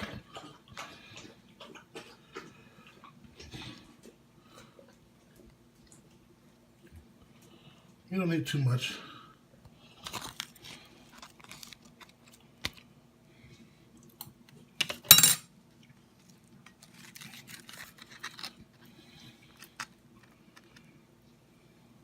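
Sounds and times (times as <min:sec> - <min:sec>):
faint steady hum: 0:00.0 - 0:22.0
crunchy scrape on taco shell: 0:10.0 - 0:12.8, 0:16.7 - 0:20.9.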